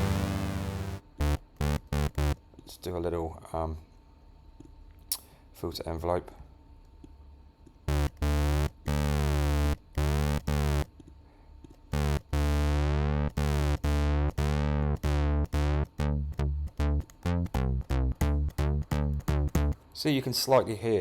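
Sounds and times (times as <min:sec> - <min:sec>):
synth bass notes: 0:00.0 - 0:02.4, 0:07.9 - 0:10.9, 0:11.9 - 0:19.9.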